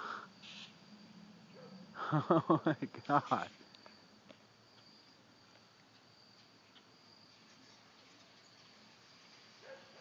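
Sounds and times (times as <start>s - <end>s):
faint insect trill: 0.0s - 10.0s
faint ticks: 3.7s - 6.9s.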